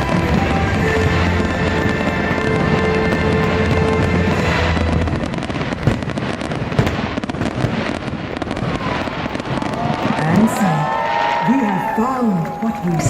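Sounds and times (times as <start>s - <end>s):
show music: 0.0s - 5.8s
fireworks bursting and crackling: 0.0s - 13.0s.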